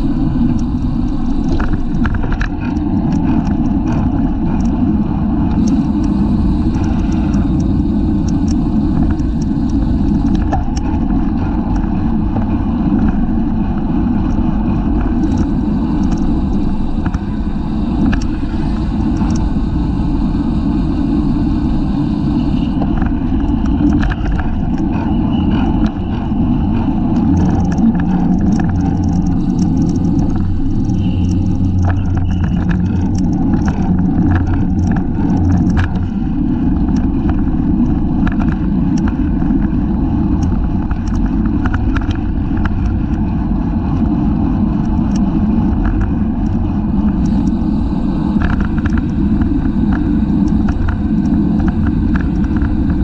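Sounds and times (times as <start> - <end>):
wind rumble on microphone: 0.0 - 53.0
light ticks and clicks: 14.2 - 19.8, 27.1 - 39.7, 40.3 - 43.2.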